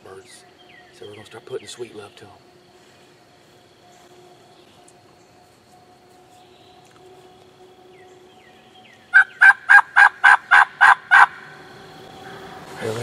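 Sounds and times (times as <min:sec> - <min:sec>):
faint insect drone: 0:00.0 - 0:13.0
turkey call hen yelps: 0:09.1 - 0:11.5.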